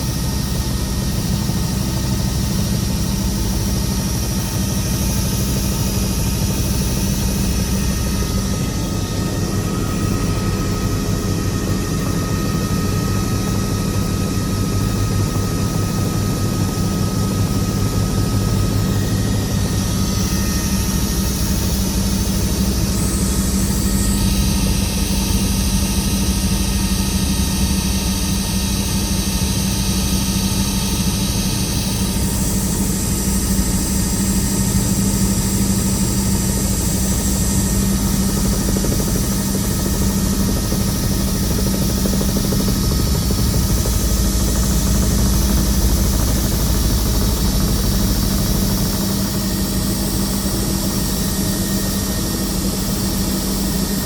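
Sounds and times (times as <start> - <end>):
helicopter engine and rotor hum: 0.0 - 54.0.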